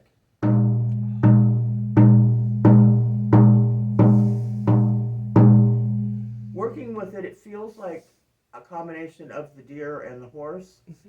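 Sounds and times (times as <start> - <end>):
deep hand drum strokes: 0.4 - 7.0.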